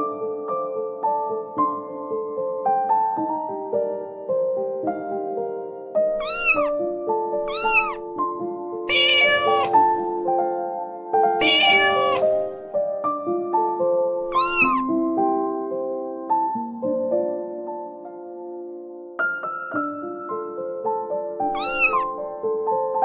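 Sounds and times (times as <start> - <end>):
soft piano music: 0.0 - 23.0
cat meowing: 6.2 - 6.8, 7.4 - 8.0, 8.9 - 10.1, 11.4 - 12.6, 14.2 - 14.9, 21.5 - 22.2.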